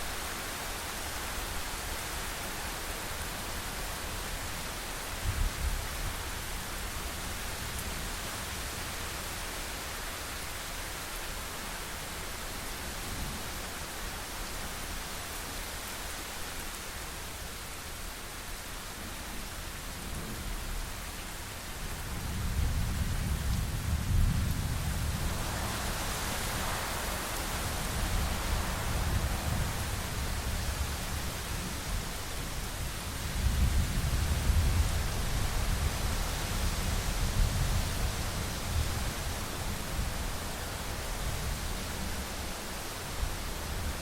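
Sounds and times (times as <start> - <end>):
steady rain: 0.0 - 44.0.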